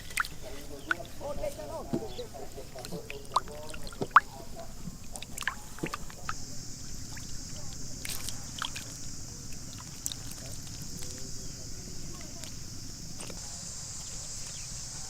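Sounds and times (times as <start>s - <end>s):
small drips and clicks: 0.0s - 1.1s, 7.1s - 11.3s
shallow water sloshing and splashing: 0.0s - 13.4s.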